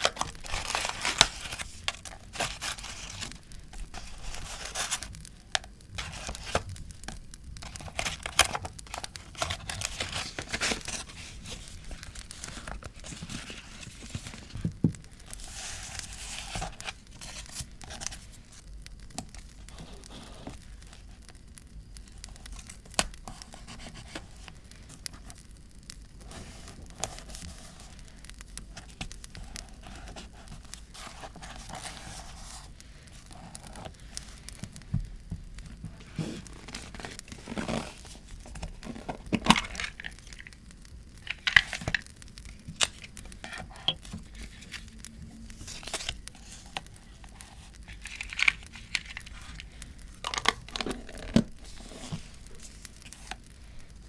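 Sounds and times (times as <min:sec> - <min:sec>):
paper tearing and crinkling: 0:00.0 - 0:06.8, 0:07.6 - 0:14.6, 0:35.8 - 0:40.6, 0:41.2 - 0:53.4.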